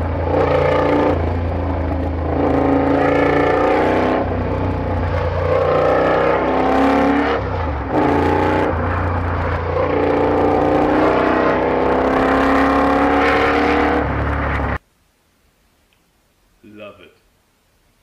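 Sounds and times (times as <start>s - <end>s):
motorcycle engine accelerating: 0.0s - 14.8s.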